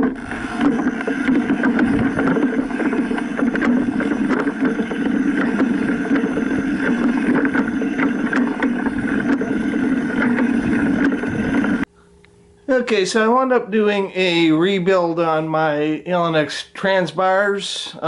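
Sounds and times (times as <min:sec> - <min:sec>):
wind on microphone: 0:00.0 - 0:11.9.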